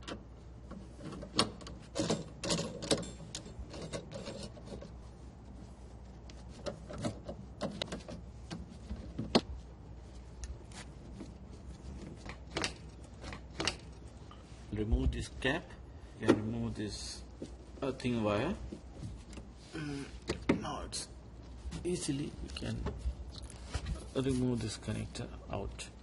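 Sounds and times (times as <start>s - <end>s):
clicks and knocks of machine parts: 0.0s - 4.8s.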